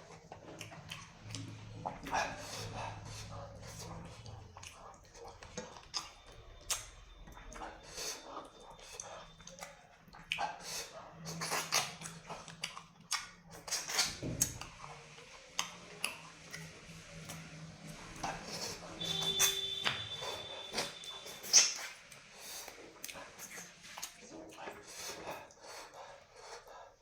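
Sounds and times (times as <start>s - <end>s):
lip smacking: 0.0s - 17.5s, 18.2s - 26.9s
chewing: 0.0s - 27.0s
breathing: 24.8s - 27.0s.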